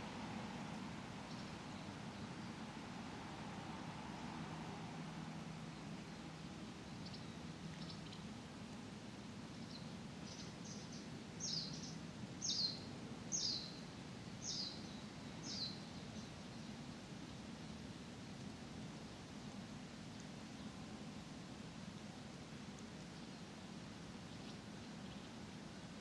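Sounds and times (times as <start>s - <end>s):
small bird chirping: 6.9s - 8.2s, 9.6s - 13.8s, 14.4s - 16.7s.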